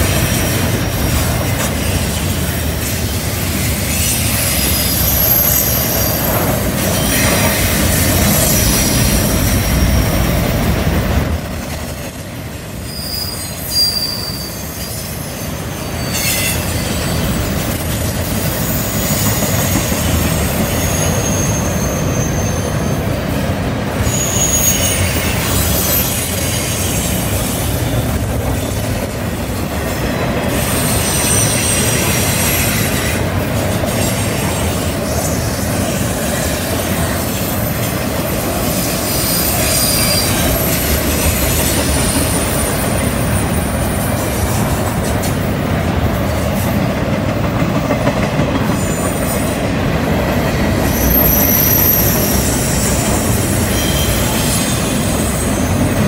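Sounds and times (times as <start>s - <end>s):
train wheels rumbling on rail: 0.0s - 56.0s
high-pitched flange squeal: 3.9s - 10.2s, 12.8s - 17.4s, 18.3s - 23.1s, 24.0s - 26.8s, 38.7s - 43.1s, 50.6s - 55.9s.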